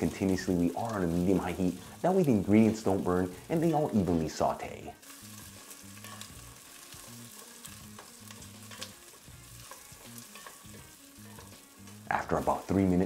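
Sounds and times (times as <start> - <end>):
onion and garlic sizzling in oil: 0.0 - 13.0
wooden spoon stirring: 8.0 - 11.6.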